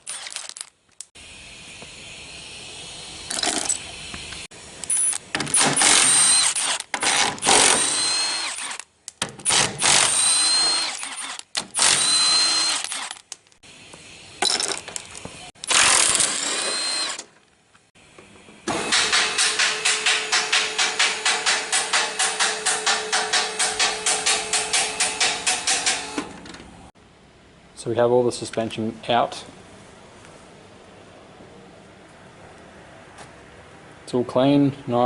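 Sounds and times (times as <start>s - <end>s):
power tool whining: 1.6s - 8.8s, 9.4s - 13.2s, 15.6s - 17.3s.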